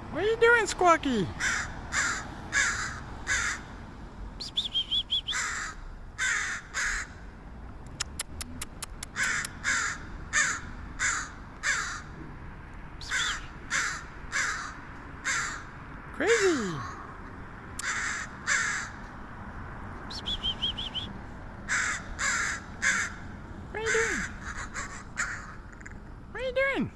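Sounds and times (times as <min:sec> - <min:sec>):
crow cawing: 0:01.4 - 0:03.7, 0:05.3 - 0:07.2, 0:09.2 - 0:12.2, 0:13.0 - 0:17.0, 0:17.8 - 0:19.0, 0:21.7 - 0:25.9
crow warbling call: 0:01.4 - 0:03.7, 0:05.3 - 0:07.1, 0:09.2 - 0:12.1, 0:13.0 - 0:15.7, 0:17.8 - 0:19.0, 0:21.7 - 0:23.2, 0:23.8 - 0:25.9
crow sharp clicks: 0:07.9 - 0:12.1, 0:17.8 - 0:19.0, 0:24.2 - 0:26.0.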